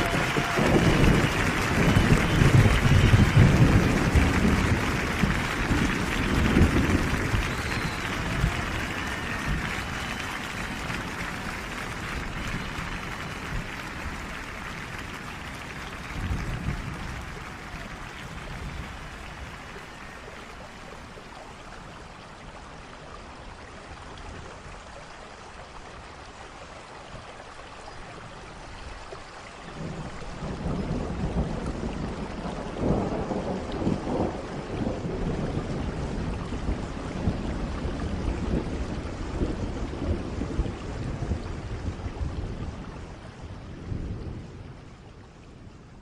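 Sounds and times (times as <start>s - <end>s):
thunder rumbling: 0.0s - 22.0s, 29.8s - 46.0s
steady rain: 0.0s - 46.0s.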